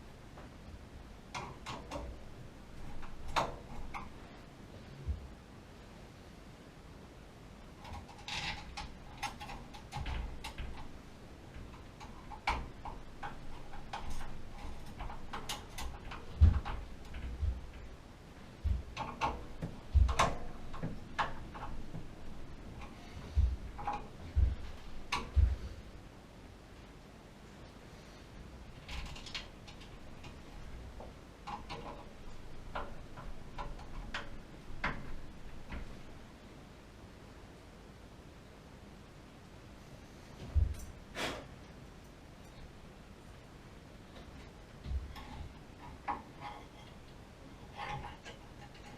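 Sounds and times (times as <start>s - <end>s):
clicks and knocks of tools: 1.3s - 2.2s, 11.5s - 17.9s, 18.6s - 25.7s, 28.8s - 36.2s, 44.1s - 48.9s
light clicks and taps: 7.8s - 18.0s, 18.6s - 25.8s
heavy thump: 23.3s - 25.8s.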